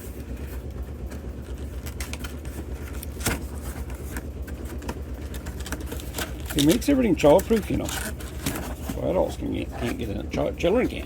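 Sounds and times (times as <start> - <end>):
steady low hum: 0.0 - 11.0
packing tape cut and ripped: 5.2 - 9.0.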